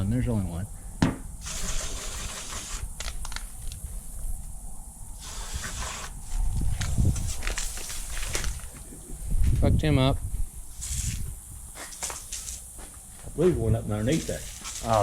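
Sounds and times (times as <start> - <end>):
aerosol spray hissing: 1.4 - 2.9, 5.2 - 6.4.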